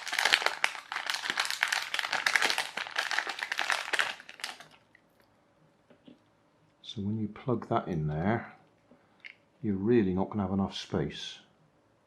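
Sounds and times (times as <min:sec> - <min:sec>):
plastic parts crinkling and clicking: 0:00.0 - 0:05.0.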